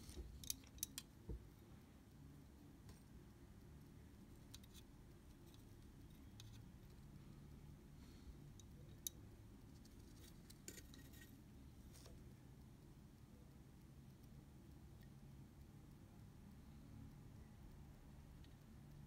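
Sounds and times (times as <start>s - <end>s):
small metal tools clicking: 0.0s - 1.1s
low steady hum: 0.0s - 19.0s.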